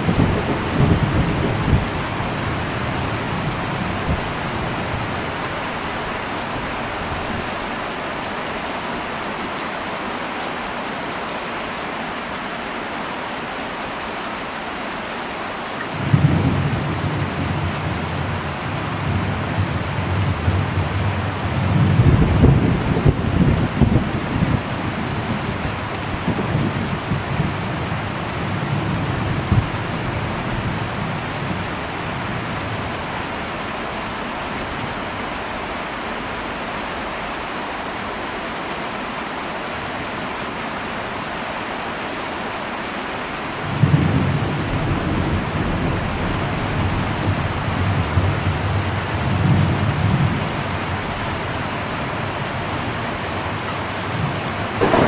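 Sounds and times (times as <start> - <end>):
rolling thunder: 0.0 - 7.5, 16.0 - 33.0, 43.7 - 55.0
heavy rain on metal roof: 0.0 - 55.0.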